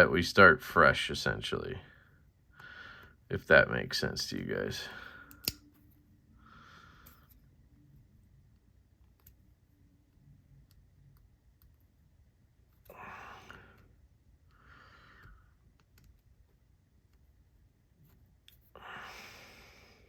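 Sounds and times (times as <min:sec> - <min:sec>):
magnets clicking and tapping: 0:05.2 - 0:05.9.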